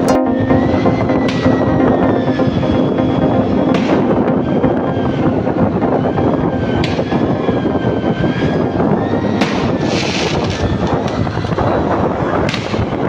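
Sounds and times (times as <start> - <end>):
street noise: 0.0 - 13.0
fireworks popping: 9.5 - 11.2.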